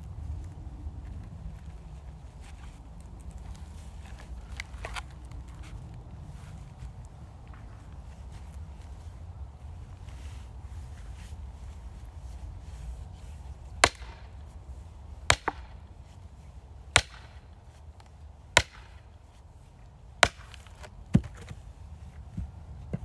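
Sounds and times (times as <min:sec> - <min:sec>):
axe splitting firewood: 0:13.8 - 0:14.3, 0:15.3 - 0:15.8, 0:17.0 - 0:17.4, 0:18.0 - 0:19.0, 0:20.2 - 0:23.0
light wooden knocks: 0:20.8 - 0:21.6, 0:22.2 - 0:23.0.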